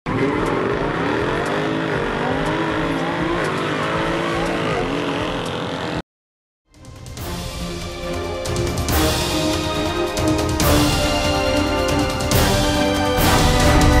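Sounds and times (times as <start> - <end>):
car engine accelerating hard: 0.1 - 6.0.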